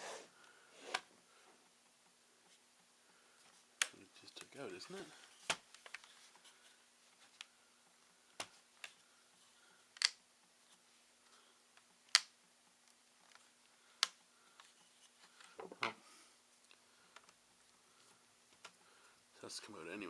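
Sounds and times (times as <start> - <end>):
laptop parts clicking: 9.9 - 10.2.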